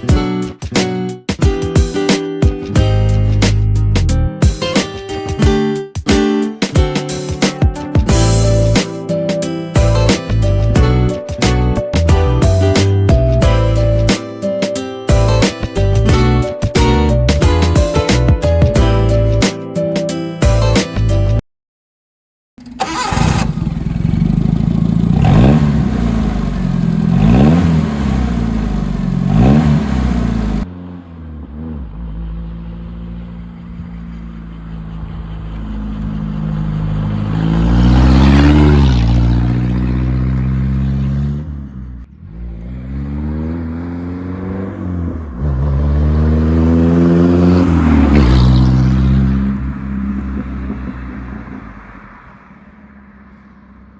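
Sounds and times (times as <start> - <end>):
engine revving: 22.6 - 52.4.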